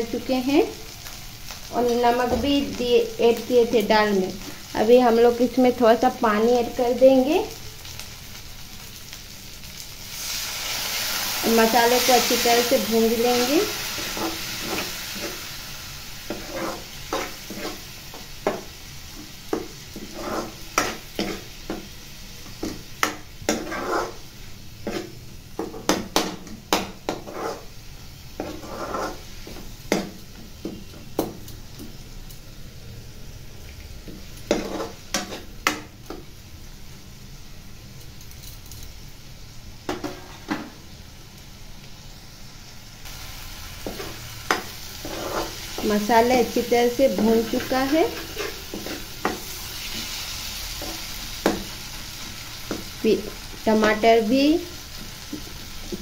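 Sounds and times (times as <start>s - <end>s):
masala sizzling in a pan: 0.0s - 56.0s
steel spoon scraping a pan: 10.9s - 15.6s, 16.2s - 18.6s, 19.5s - 21.8s, 22.6s - 25.2s, 27.1s - 27.7s, 28.4s - 29.7s, 34.4s - 35.5s, 43.8s - 53.4s.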